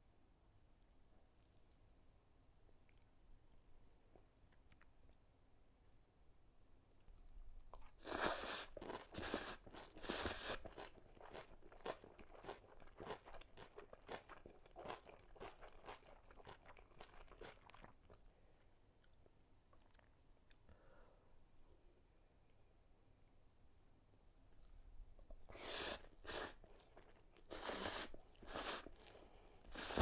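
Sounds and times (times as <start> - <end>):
person crunching and chewing: 7.8 - 17.9.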